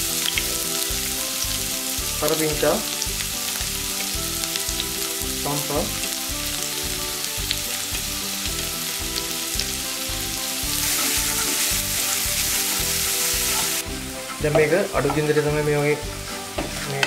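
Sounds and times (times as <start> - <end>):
food sizzling in hot oil: 0.0 - 17.0
wooden spatula scraping and stirring: 10.8 - 17.0.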